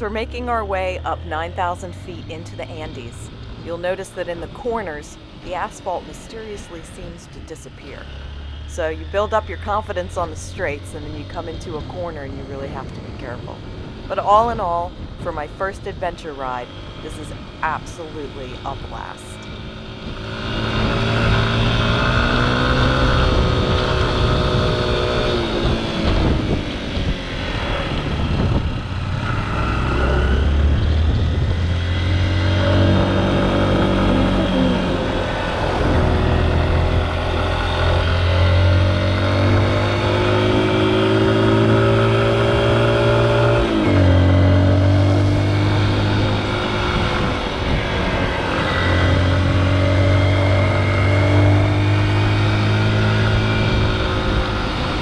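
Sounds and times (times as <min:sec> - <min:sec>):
motorcycle engine revving: 0:18.4 - 0:55.0.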